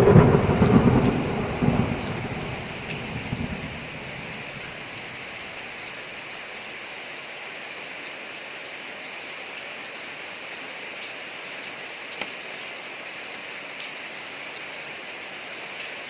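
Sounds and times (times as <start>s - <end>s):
thunder rumble: 0.0s - 5.4s
rain falling on a street: 0.0s - 16.0s.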